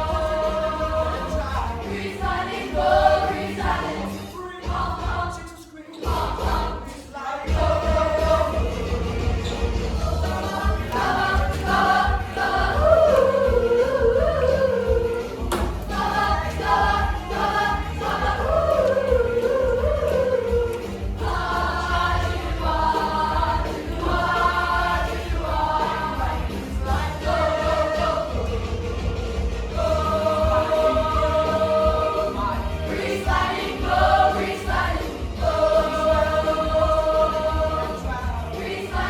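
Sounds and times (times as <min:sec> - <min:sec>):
group of voices singing: 0:00.0 - 0:39.0.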